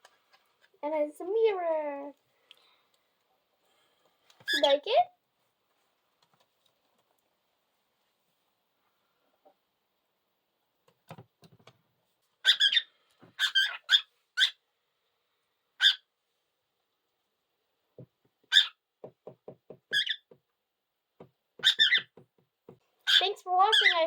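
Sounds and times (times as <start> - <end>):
cockatiel chirping: 12.4 - 14.6, 15.8 - 16.0, 18.5 - 18.8, 19.9 - 20.2, 21.6 - 22.1, 23.1 - 24.0.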